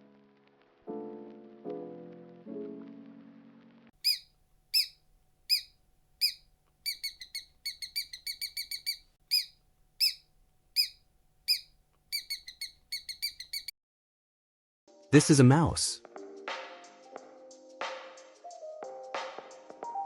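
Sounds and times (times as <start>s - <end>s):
mouse squeaking: 4.0s - 13.7s.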